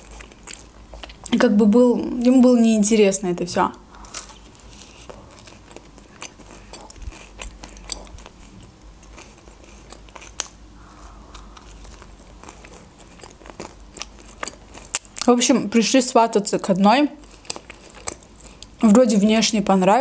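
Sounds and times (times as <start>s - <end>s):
chewing with crunchy clicks: 0.0s - 1.4s, 4.1s - 15.4s, 16.6s - 19.5s.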